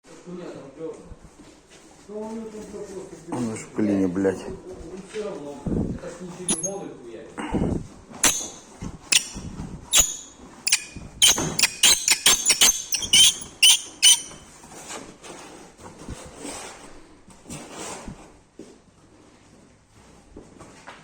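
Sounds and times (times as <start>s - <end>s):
engine metallic creaks and squeaks: 6.5s - 6.8s, 8.2s - 14.4s.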